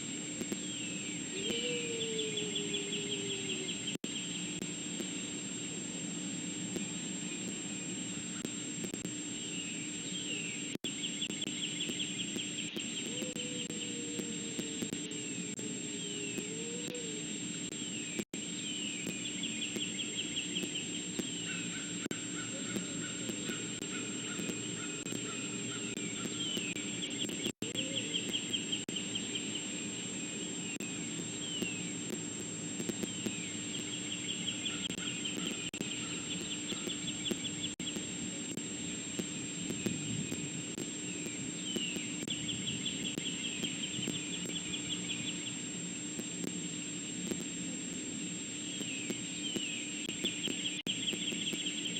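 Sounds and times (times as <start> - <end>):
steady electrical hum: 0.0 - 51.9
songbird singing with trill: 0.6 - 4.4, 17.9 - 29.7, 31.4 - 31.9, 33.1 - 38.0, 41.3 - 45.6.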